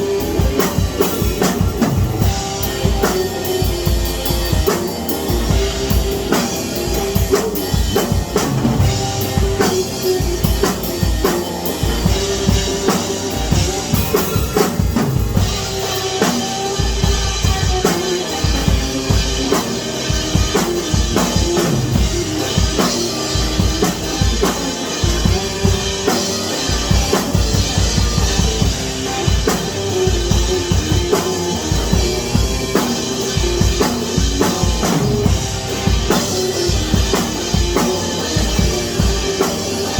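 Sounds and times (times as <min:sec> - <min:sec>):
drum kit beat: 0:00.0 - 0:39.9
sustained pitched notes: 0:00.0 - 0:39.9.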